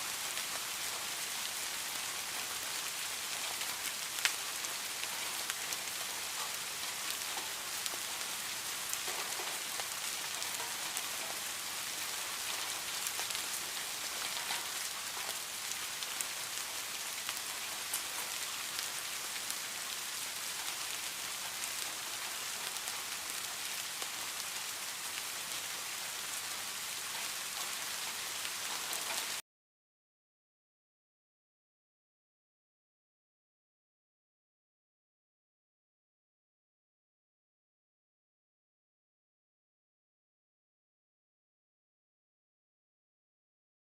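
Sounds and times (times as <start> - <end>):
heavy rain hissing: 0.0 - 29.4
raindrops ticking on surfaces: 0.0 - 29.4.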